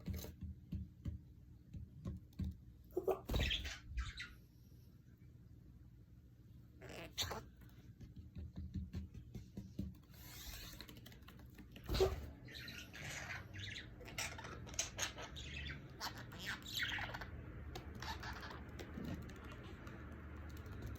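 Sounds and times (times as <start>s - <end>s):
budgerigar chirping and chattering: 11.9s - 19.6s.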